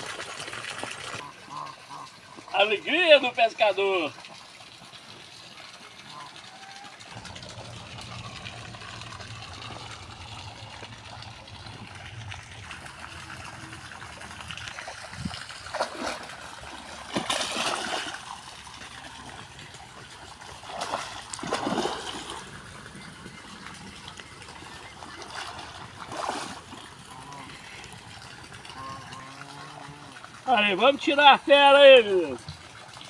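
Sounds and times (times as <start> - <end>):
water trickling and splashing: 0.0 - 33.0.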